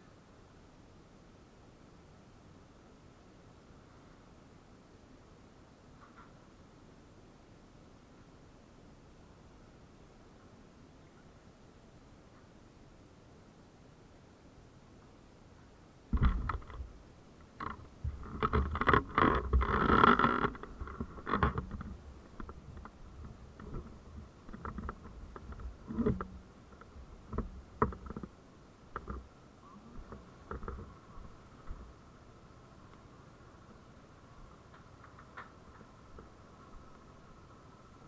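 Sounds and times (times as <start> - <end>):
faint steady tone: 0.0 - 38.0
irregular knocks: 17.6 - 28.3
scraping sounds: 17.6 - 28.3.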